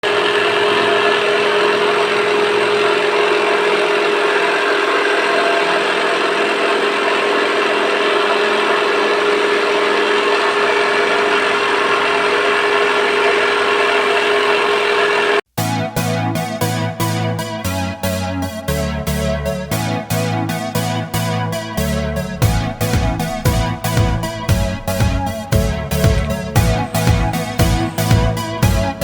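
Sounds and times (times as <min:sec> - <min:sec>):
electric motor whining: 0:21.5 - 0:29.0.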